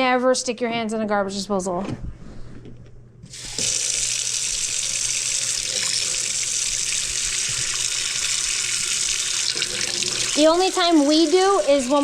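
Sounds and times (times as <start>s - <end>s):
faucet running into sink: 3.3s - 12.0s.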